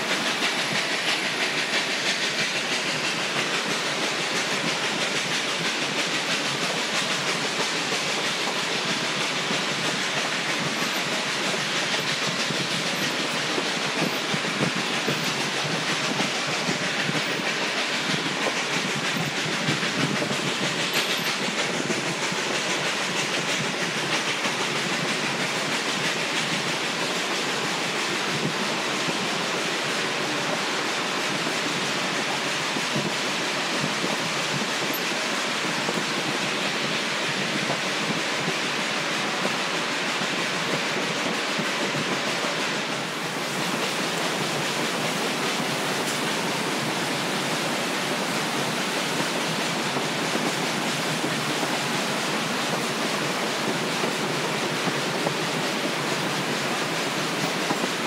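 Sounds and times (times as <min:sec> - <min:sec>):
train rushing noise: 0:00.0 - 0:58.0.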